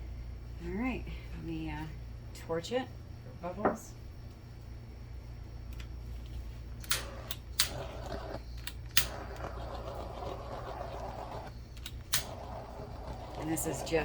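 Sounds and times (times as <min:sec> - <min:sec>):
torch igniter clicks: 0:06.8 - 0:09.4, 0:11.4 - 0:12.5
torch flame hissing: 0:06.9 - 0:14.0.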